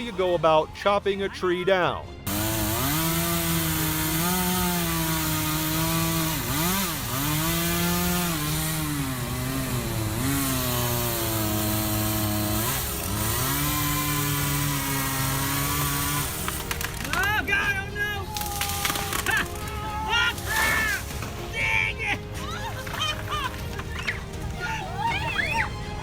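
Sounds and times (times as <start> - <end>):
chainsaw cutting a tree: 2.2 - 24.6.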